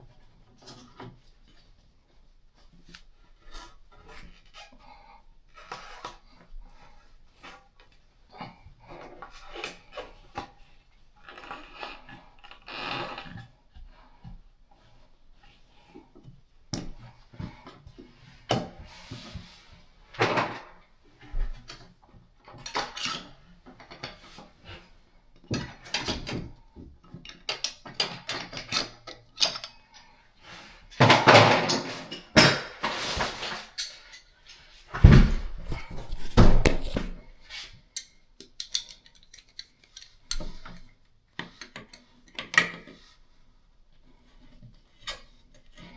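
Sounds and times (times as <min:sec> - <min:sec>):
plumbing parts clattering: 0:34.9 - 0:37.3, 0:38.0 - 0:40.8.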